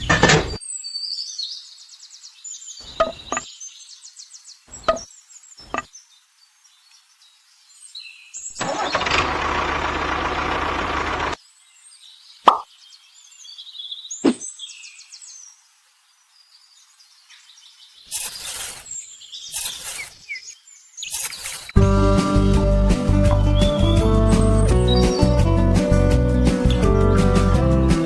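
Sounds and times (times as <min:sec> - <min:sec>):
birds chirping: 0:00.0 - 0:09.2, 0:10.3 - 0:28.0
engine running: 0:08.6 - 0:11.4.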